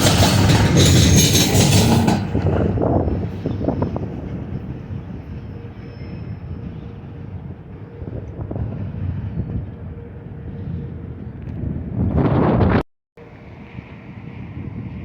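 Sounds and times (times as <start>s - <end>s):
train wheel clatter: 0.0s - 4.7s
train rumbling past: 0.0s - 9.3s.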